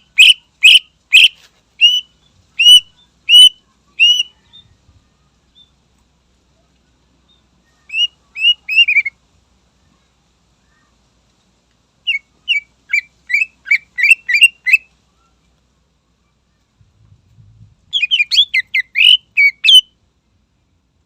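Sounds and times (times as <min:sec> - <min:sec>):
bird chirping: 0:00.0 - 0:05.8, 0:06.8 - 0:09.2, 0:12.0 - 0:15.5, 0:17.9 - 0:20.0.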